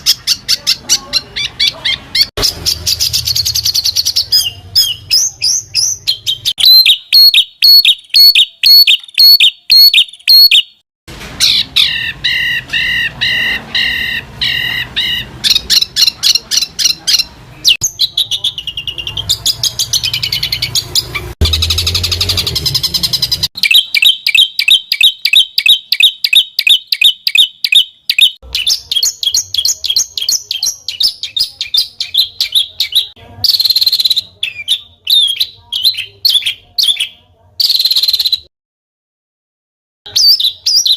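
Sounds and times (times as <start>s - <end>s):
songbird chirps and trills: 0.0s - 10.8s, 11.4s - 38.5s.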